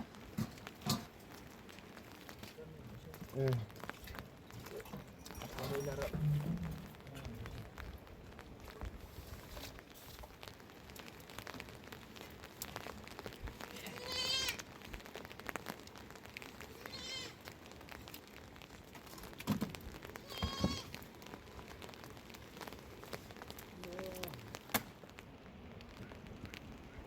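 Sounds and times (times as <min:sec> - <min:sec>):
sheep bleating: 0:13.7 - 0:14.6, 0:16.8 - 0:17.4, 0:20.2 - 0:20.9.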